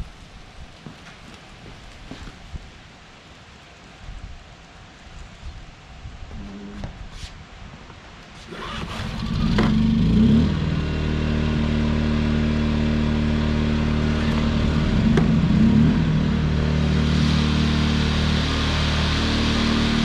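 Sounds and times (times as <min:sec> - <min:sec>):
generator running loud: 0:08.5 - 0:20.0.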